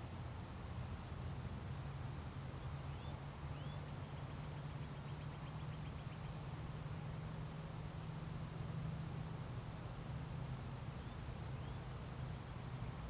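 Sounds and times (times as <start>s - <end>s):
songbird calls and trill: 2.6s - 6.6s, 10.8s - 13.0s.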